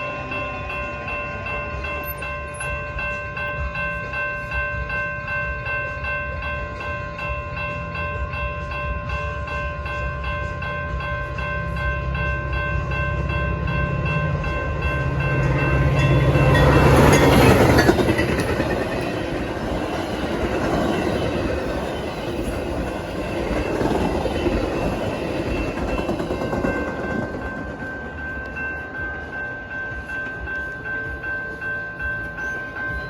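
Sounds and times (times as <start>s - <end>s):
steady high tones: 0.0s - 33.0s
train cars rumbling past: 0.0s - 33.0s
train engine hum: 0.0s - 33.0s.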